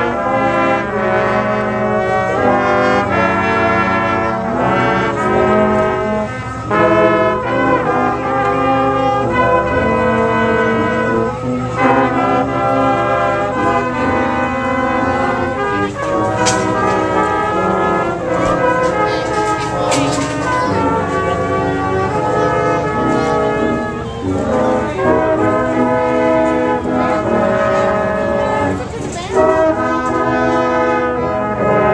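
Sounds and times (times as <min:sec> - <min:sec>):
brass band playing: 0:00.0 - 0:31.9.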